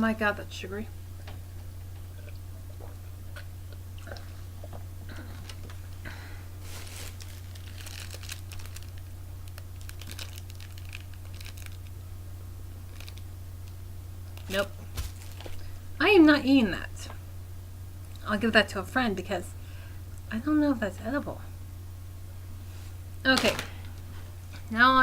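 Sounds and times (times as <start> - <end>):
low electrical hum: 0.0 - 25.0
chewing hard candy: 1.5 - 6.0, 7.1 - 12.0.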